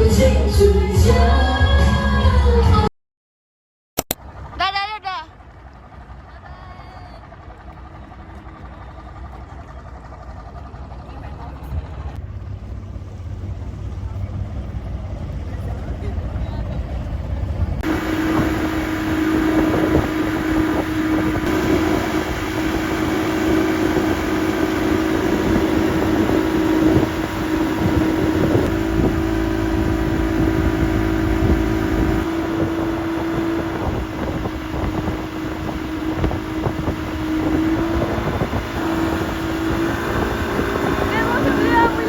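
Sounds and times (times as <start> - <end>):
low rumble: 4.2 - 42.0
watercraft engine running: 4.2 - 42.0
wind buffeting microphone: 16.1 - 42.0.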